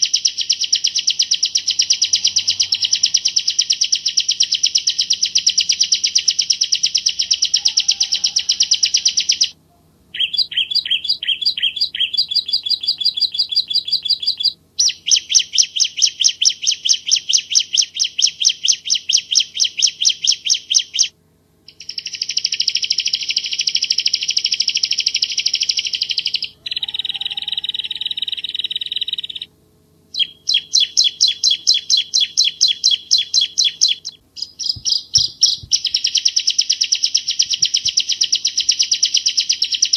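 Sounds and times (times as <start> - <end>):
bird singing sharp high notes: 0.0 - 21.1, 30.1 - 39.9.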